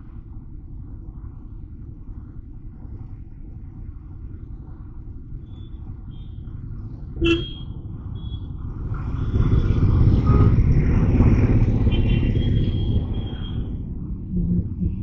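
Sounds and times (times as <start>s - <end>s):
road traffic: 5.5s - 15.0s.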